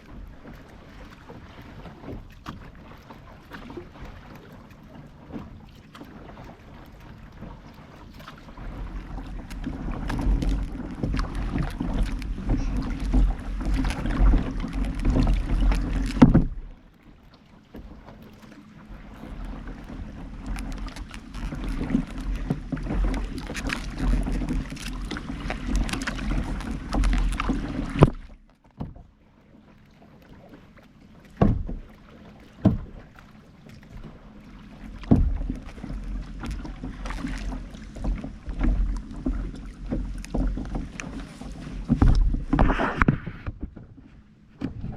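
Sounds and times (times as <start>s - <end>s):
paddle strokes and water splashing: 0.0s - 44.9s
low rumble on microphone: 8.6s - 16.8s, 35.0s - 44.9s
sharp knocks: 31.4s - 31.8s.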